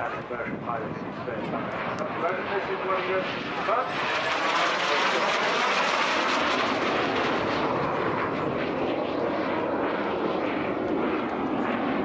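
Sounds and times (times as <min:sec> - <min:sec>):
jet aircraft rushing past: 0:00.0 - 0:12.0.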